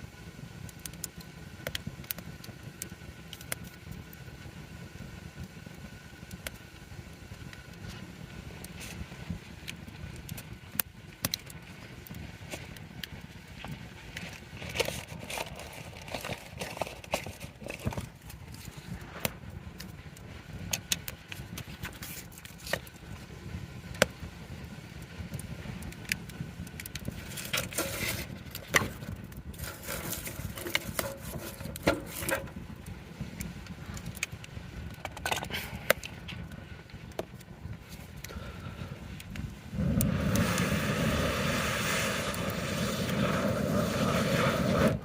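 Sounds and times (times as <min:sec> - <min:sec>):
campfire crackling and popping: 0:00.0 - 0:45.0
low rumble: 0:36.0 - 0:45.0.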